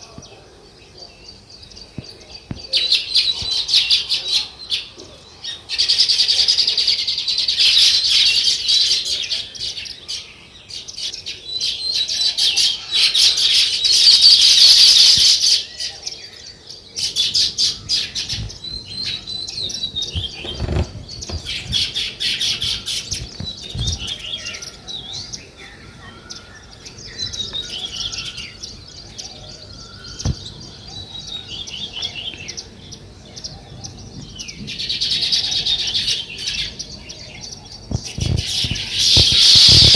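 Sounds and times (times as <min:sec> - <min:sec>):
songbirds chirping: 0:00.0 - 0:39.9
low thumps: 0:18.2 - 0:24.2, 0:30.2 - 0:30.7.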